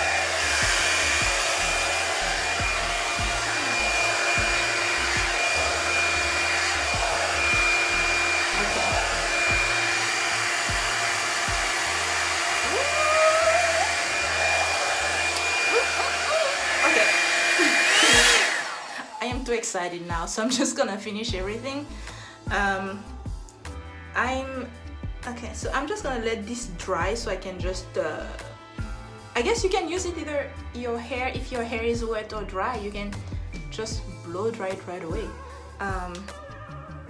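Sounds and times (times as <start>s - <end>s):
faint background music with beat: 0.0s - 17.2s, 19.2s - 37.0s
blow dryer hissing and whining: 0.0s - 19.6s.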